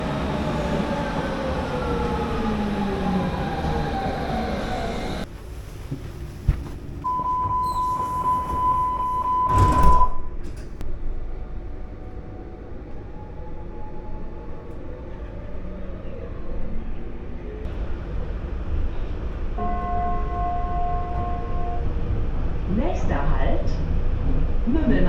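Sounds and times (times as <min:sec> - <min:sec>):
electric train motor whine: 0:00.0 - 0:05.3
train running rumble: 0:00.0 - 0:25.0
steady warning beep: 0:07.1 - 0:10.4.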